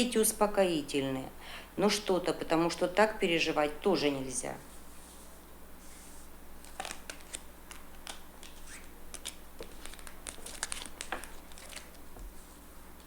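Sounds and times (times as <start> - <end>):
playing cards snapping and rustling: 6.6 - 12.1.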